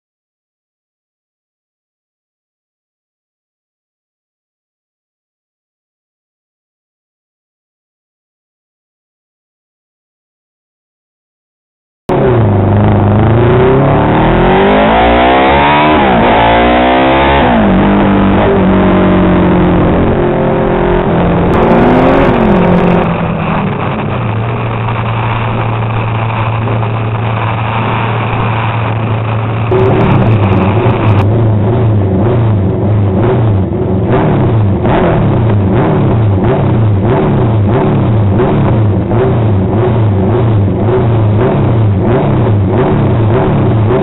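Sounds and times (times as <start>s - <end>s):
race motorcycle engine revving: 12.1s - 44.0s.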